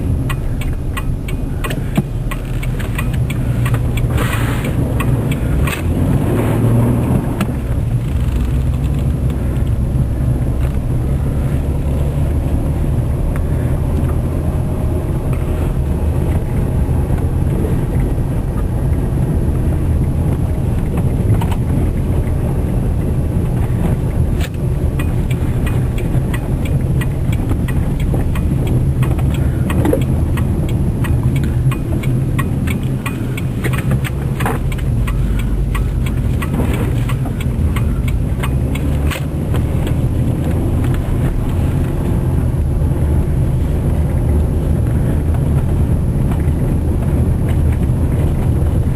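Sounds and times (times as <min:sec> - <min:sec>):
car engine and tyre rumble: 0:00.0 - 0:48.9.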